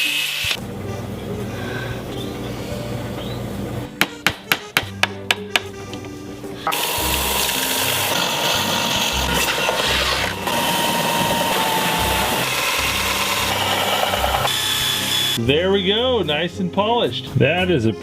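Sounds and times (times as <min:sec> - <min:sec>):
background music: 0:00.0 - 0:18.0
power tool polishing metal: 0:06.7 - 0:15.4.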